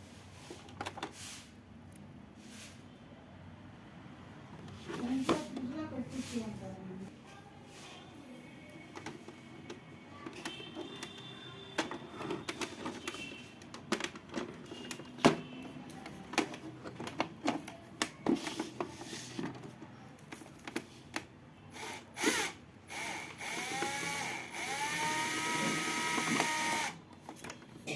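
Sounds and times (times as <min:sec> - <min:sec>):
handling clicks and knocks: 0:00.5 - 0:01.2, 0:08.9 - 0:21.3
electric drill whining: 0:21.8 - 0:27.0.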